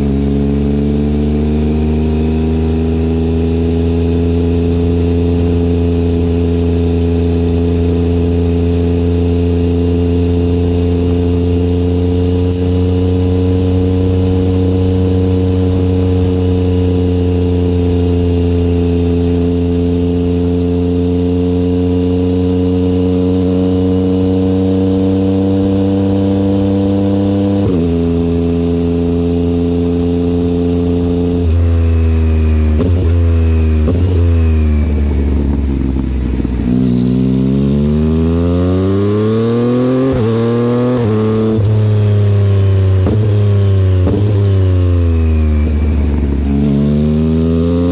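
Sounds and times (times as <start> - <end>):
motorcycle engine cruising: 0.0 - 47.9.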